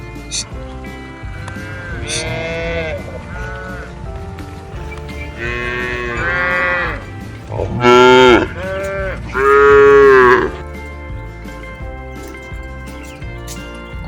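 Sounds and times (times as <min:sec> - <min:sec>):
cows mooing: 0:00.3 - 0:10.8.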